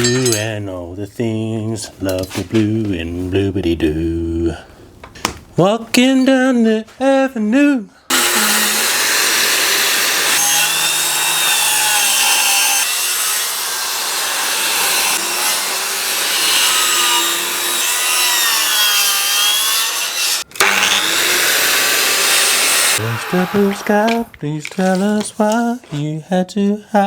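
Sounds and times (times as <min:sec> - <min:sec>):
circular saw cutting timber: 0:08.1 - 0:25.5.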